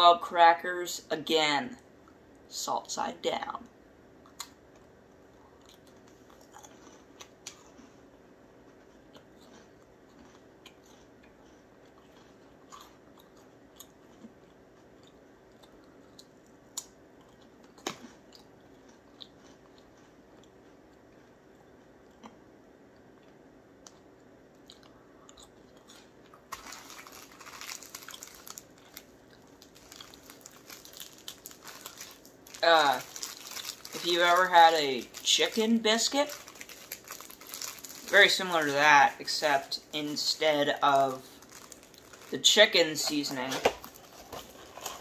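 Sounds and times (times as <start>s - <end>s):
cracker crunching: 4.2s - 45.0s
plastic sleeve crinkling: 26.5s - 45.0s.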